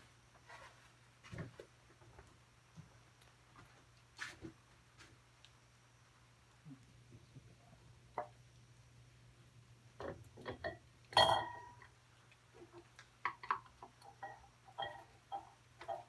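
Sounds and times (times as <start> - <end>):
clink: 11.2 - 11.8, 14.2 - 16.0.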